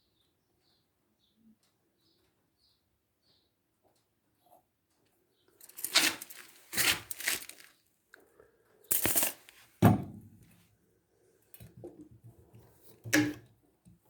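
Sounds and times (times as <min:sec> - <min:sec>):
rustling and scraping handling noise: 0:05.5 - 0:07.9, 0:08.9 - 0:09.8.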